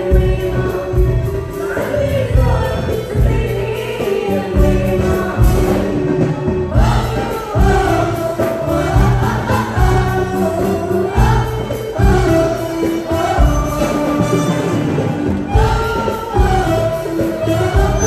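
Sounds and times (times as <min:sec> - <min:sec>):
choir singing: 0:00.0 - 0:18.0
instrumental backing: 0:00.0 - 0:18.0.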